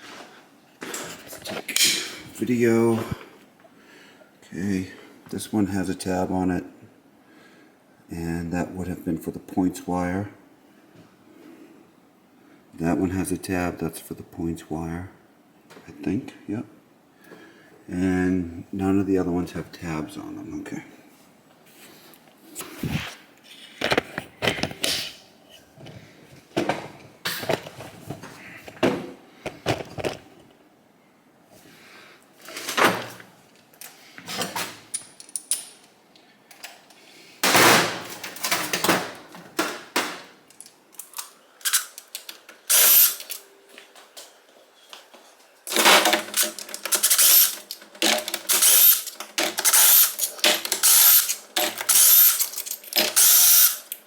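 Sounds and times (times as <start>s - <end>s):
metal tools clinking: 34.9s - 35.8s, 45.7s - 54.0s
power driver whining bursts: 42.7s - 43.4s, 46.9s - 47.6s, 48.5s - 50.2s, 50.8s - 52.4s, 53.1s - 53.8s.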